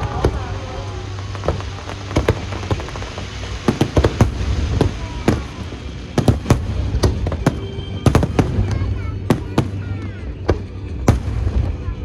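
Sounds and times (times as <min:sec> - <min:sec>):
firework shells bursting: 0:01.5 - 0:10.1, 0:11.1 - 0:11.7
steady low rumble: 0:02.2 - 0:12.0.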